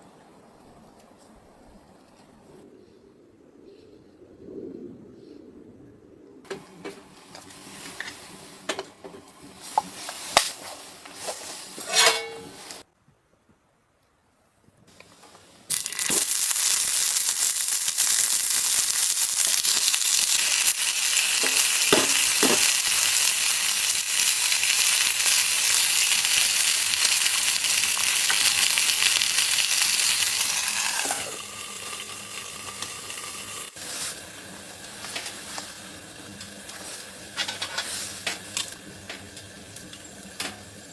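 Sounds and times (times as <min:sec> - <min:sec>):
food sizzling in a pan: 0:15.7 - 0:40.9.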